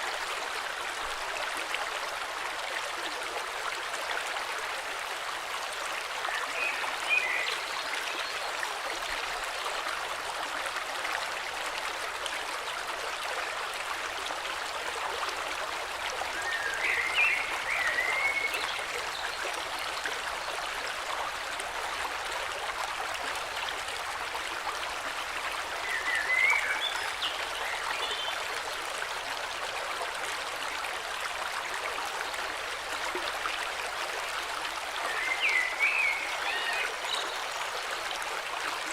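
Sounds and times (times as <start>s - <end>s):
river flowing: 0.0s - 38.9s.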